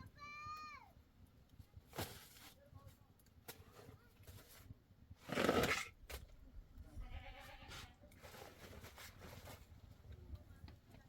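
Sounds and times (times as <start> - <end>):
livestock bleating: 7.0 - 7.9.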